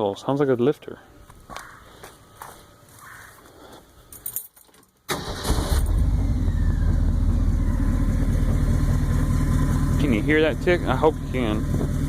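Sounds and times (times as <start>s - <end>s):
keys jingling: 4.1s - 5.0s
engine cranking and idling: 5.1s - 12.0s.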